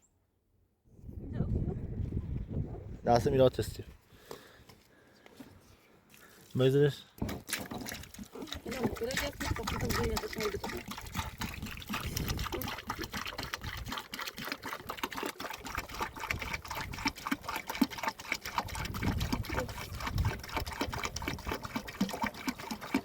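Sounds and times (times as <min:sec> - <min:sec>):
water drops pattering: 0:07.2 - 0:16.6.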